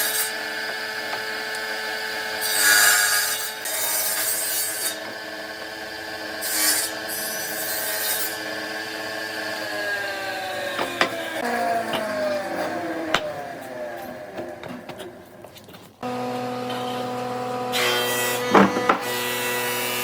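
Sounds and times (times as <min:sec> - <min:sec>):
power tool rasping wood: 0:00.0 - 0:20.0
sharp knocks: 0:18.4 - 0:19.2.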